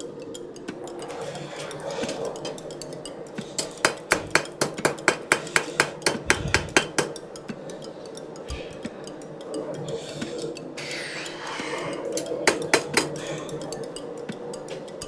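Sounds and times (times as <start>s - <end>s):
steady low hum: 5.8s - 10.8s.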